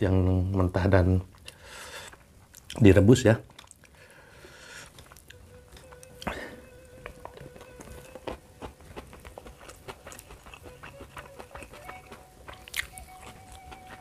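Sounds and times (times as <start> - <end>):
man chewing with lip smacks: 1.3 - 2.8, 3.4 - 4.0, 4.7 - 14.0
fingers picking at food: 7.0 - 14.0.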